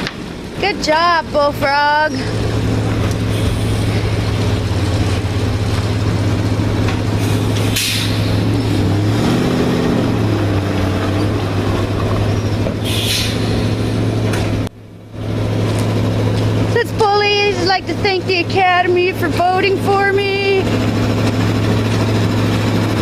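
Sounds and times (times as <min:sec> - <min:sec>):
truck engine running: 0:00.0 - 0:23.0
short hisses: 0:03.2 - 0:04.2, 0:07.2 - 0:08.4, 0:12.8 - 0:13.7.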